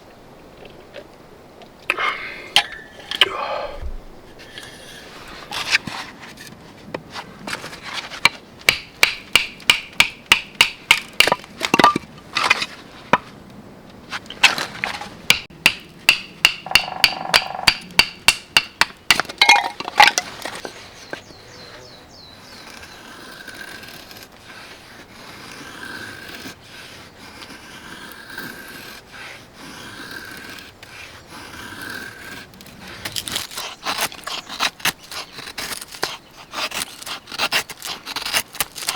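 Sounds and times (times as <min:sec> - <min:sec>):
sharp ringing knocks: 0:15.3 - 0:19.8.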